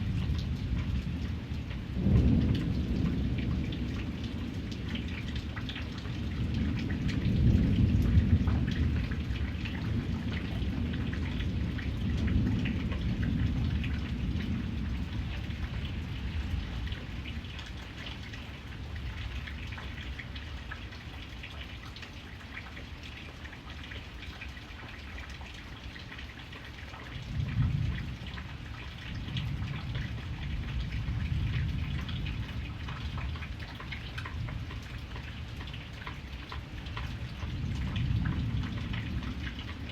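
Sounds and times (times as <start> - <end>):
thunder rumbling: 0.0 - 17.2, 27.2 - 33.4, 37.2 - 39.9
steady rain falling: 0.0 - 39.9.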